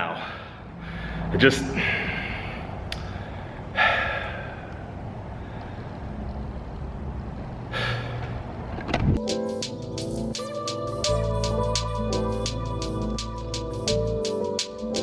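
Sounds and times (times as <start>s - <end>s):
steady low rumble: 9.2s - 15.0s.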